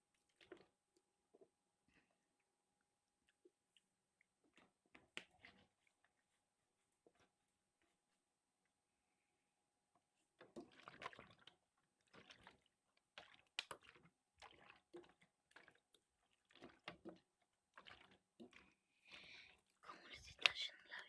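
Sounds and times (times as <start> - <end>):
water sloshing and splashing: 0.1 - 1.5, 3.3 - 6.0, 10.3 - 19.8.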